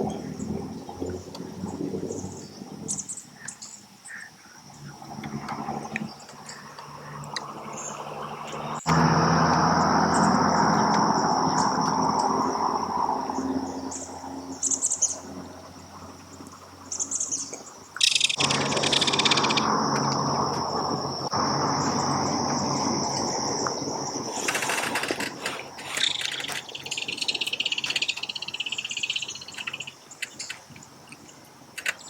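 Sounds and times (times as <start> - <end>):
high insect drone: 0.0 - 31.0
rushing background noise: 0.0 - 32.0
kingfisher rattling chatter: 18.0 - 20.7, 24.1 - 30.7.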